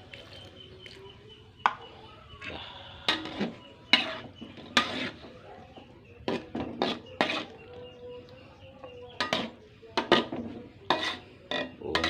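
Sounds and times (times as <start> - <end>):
utensil scraping cooking pot: 3.1 - 7.9, 8.8 - 12.0.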